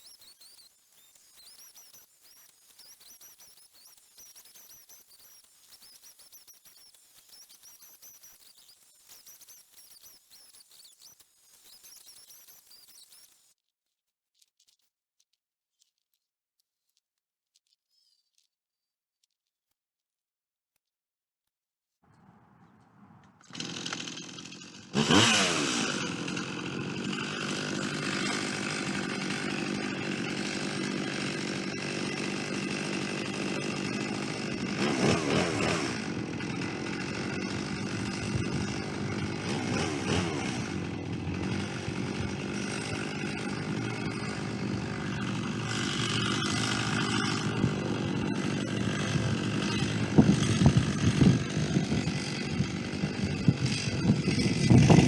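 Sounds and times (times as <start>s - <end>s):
chainsaw milling a log: 23.3s - 55.0s.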